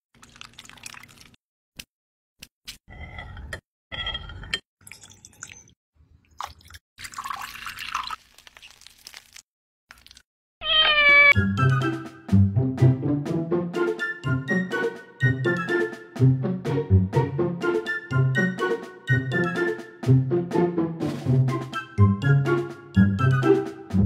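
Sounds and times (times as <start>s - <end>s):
liquid splashing into glass: 0.2s - 1.4s, 4.8s - 5.8s, 6.4s - 10.2s
cat meowing: 10.6s - 11.4s.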